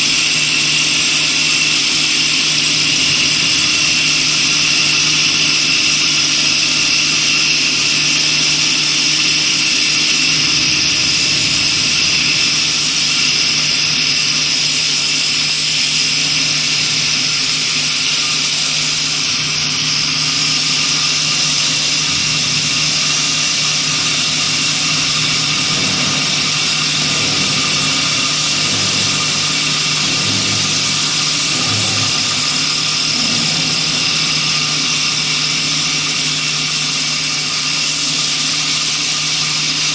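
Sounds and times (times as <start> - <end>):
wood lathe motor humming: 0.0 - 39.9.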